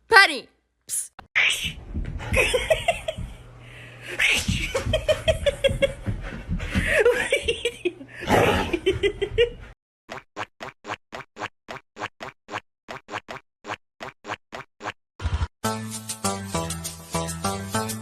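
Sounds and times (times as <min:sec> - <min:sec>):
person laughing hard: 0:02.3 - 0:03.4, 0:04.2 - 0:09.6.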